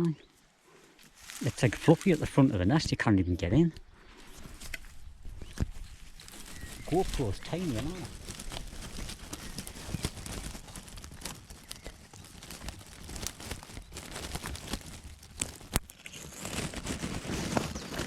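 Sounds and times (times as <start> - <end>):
twigs and leaves rustling: 0.2 - 18.0
small irregular clicks: 3.7 - 16.8.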